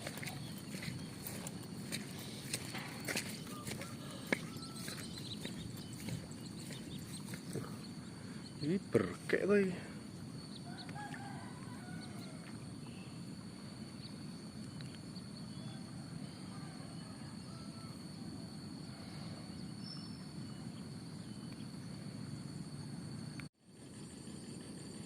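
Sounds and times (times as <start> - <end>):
wind rumble: 0.0 - 8.7
faint bird chirps: 0.0 - 9.0
high insect drone: 0.0 - 25.0.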